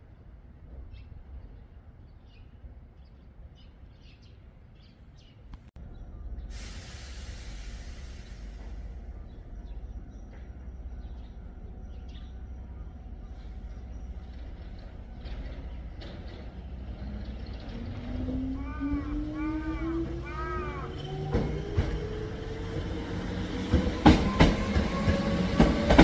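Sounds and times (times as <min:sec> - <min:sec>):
small birds chirping: 0:00.9 - 0:06.6, 0:08.2 - 0:23.8
low hum: 0:05.8 - 0:19.0
electric train rumble: 0:05.8 - 0:26.0
hiss of air: 0:06.5 - 0:09.0.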